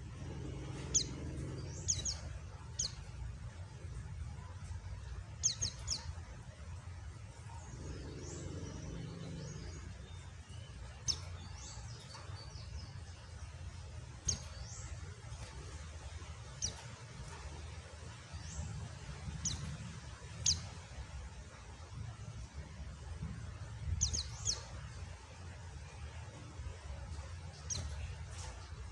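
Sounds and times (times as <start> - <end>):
soft downslurred bird calls: 0.0 - 3.6.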